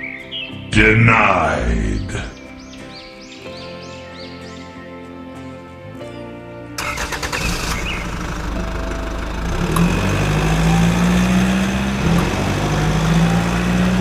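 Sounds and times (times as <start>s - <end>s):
tractor engine cranking: 6.8s - 14.0s
tractor engine running: 6.8s - 14.0s.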